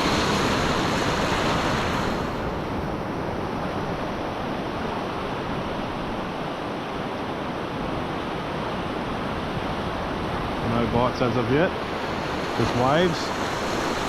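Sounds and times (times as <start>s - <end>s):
ocean waves breaking: 0.0s - 14.0s.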